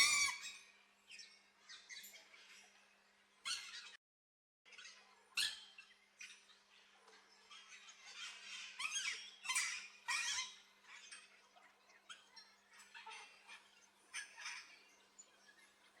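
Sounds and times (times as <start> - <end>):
parrots squeaking and squawking: 0.0 - 0.6, 3.5 - 4.0, 7.5 - 11.4, 12.1 - 14.8.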